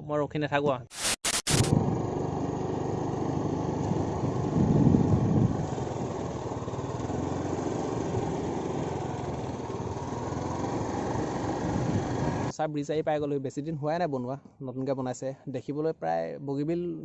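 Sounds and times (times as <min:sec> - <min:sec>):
motor scooter engine running: 0:01.7 - 0:12.5.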